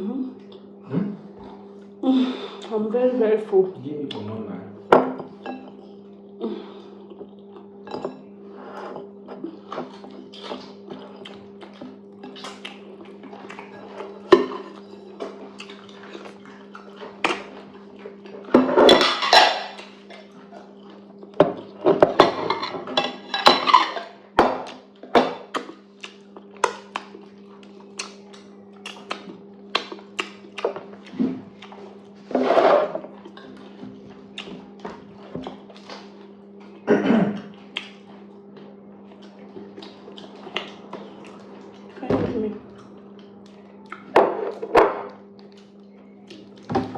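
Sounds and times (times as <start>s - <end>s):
steady low hum: 0.0s - 46.9s
dishes and cutlery clinking: 18.5s - 19.9s, 21.4s - 24.6s.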